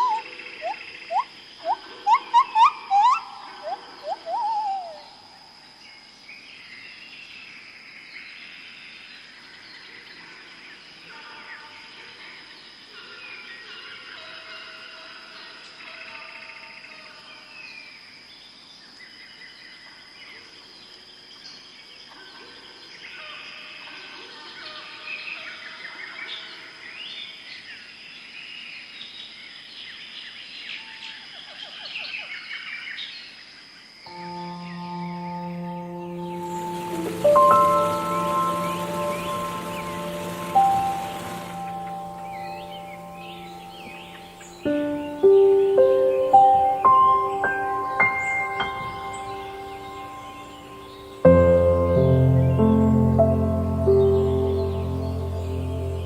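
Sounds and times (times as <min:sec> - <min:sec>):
distant bird chirps: 0:00.0 - 0:05.8, 0:34.1 - 0:56.0
steady high tone: 0:34.1 - 0:45.2.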